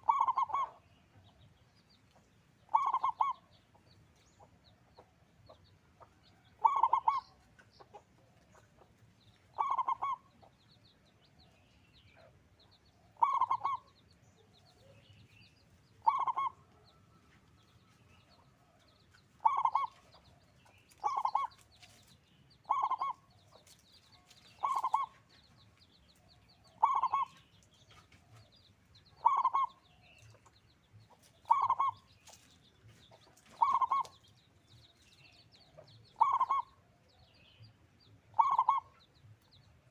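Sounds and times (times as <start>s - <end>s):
dove cooing: 0.0s - 0.8s, 2.7s - 3.5s, 6.6s - 7.4s, 9.5s - 10.3s, 13.1s - 13.9s, 16.0s - 16.8s, 19.4s - 20.1s, 20.9s - 21.6s, 22.6s - 23.2s, 24.5s - 25.2s, 26.7s - 27.4s, 29.2s - 29.8s, 31.4s - 32.0s, 33.5s - 34.2s, 36.1s - 36.8s, 38.3s - 38.9s
small birds chirping: 0.0s - 39.9s.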